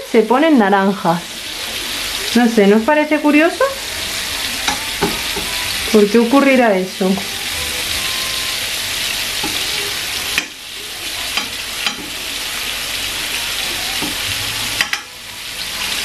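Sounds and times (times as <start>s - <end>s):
prawns sizzling in oil: 0.0s - 16.0s
metal tongs clicking on pan: 10.3s - 10.6s, 11.3s - 12.2s, 14.8s - 15.1s.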